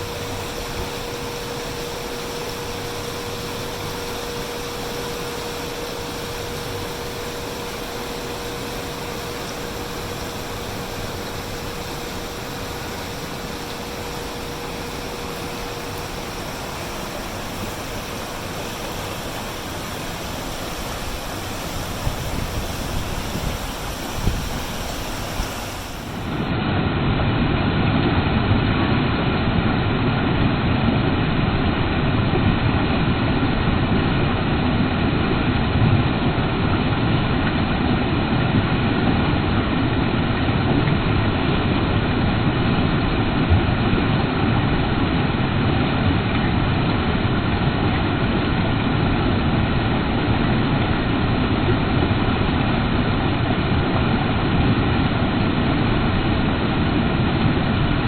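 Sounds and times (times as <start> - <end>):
creek water rushing: 0.0 - 26.6.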